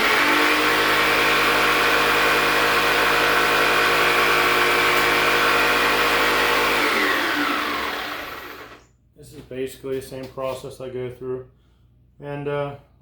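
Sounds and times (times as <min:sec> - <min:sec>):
electric power saw whining: 0:00.0 - 0:08.8.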